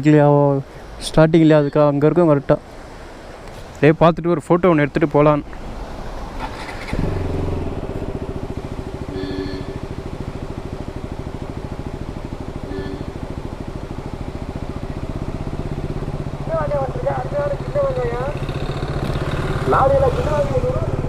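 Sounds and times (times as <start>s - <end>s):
motorcycle engine idling: 6.5s - 21.0s.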